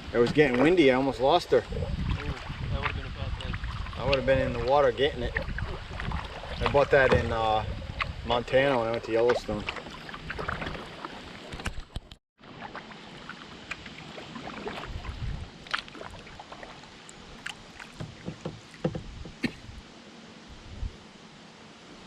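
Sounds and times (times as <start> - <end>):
moving water: 0.0 - 22.0
wind: 0.0 - 22.0
paddle splashing in water: 0.1 - 19.8
small knocks: 17.8 - 19.6.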